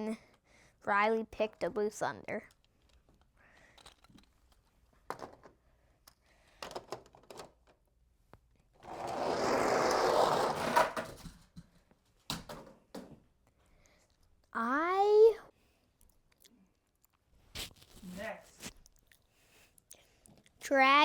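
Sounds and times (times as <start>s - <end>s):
toy trucks clicking and knocking: 2.4s - 7.9s
little wheels rolling rattle: 8.8s - 11.1s.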